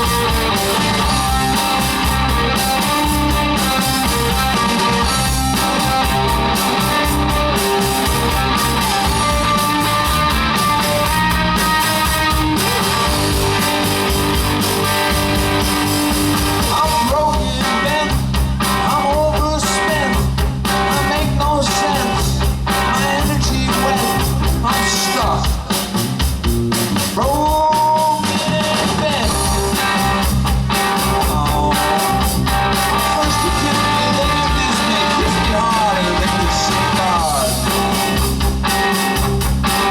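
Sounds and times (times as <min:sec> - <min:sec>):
electric guitar: 0:00.0 - 0:39.9
rock band playing live: 0:00.0 - 0:39.9
person singing: 0:16.6 - 0:25.6, 0:31.0 - 0:38.1.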